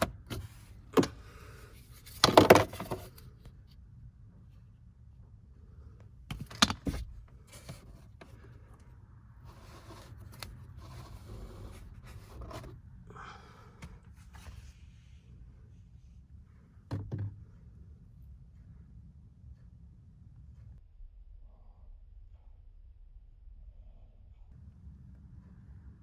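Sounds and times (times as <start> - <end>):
plastic parts scraping and rustling: 0.0 - 3.4, 6.3 - 8.8, 9.5 - 12.8.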